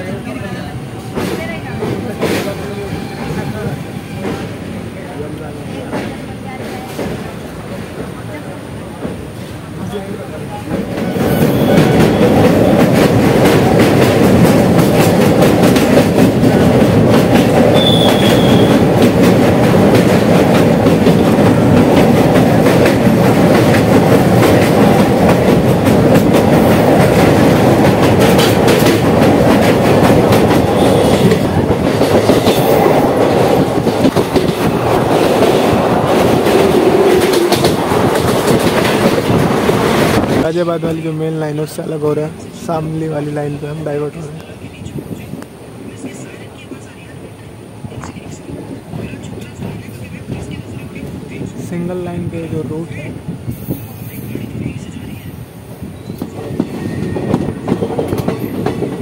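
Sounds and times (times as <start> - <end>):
train wheels rumbling on rails: 0.0 - 59.0
rapid rail clicks: 11.8 - 40.4.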